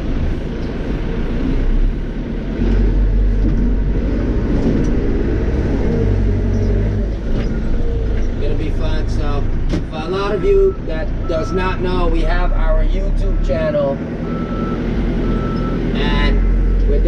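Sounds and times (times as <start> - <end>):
diesel engine rumble from cab: 0.0 - 17.0.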